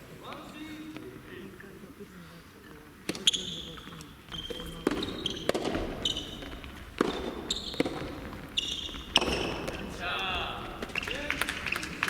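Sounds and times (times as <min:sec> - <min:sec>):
shoes squeaking on court: 0:03.1 - 0:11.9
tennis ball strikes: 0:04.5 - 0:11.0.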